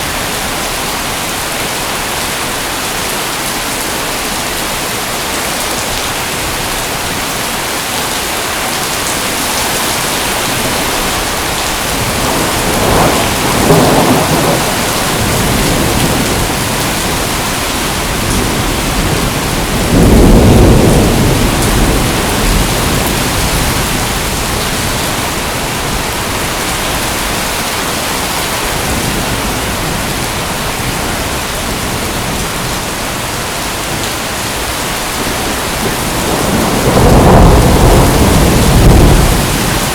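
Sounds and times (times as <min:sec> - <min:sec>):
heavy rain: 0:00.0 - 0:39.9
thunder rolling: 0:09.3 - 0:27.4, 0:35.2 - 0:39.9.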